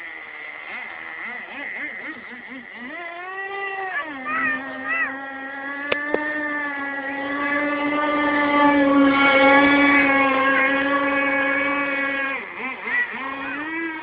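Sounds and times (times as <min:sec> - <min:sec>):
model boat motor whining: 0:00.0 - 0:14.0
sharp clicks: 0:05.9 - 0:06.2.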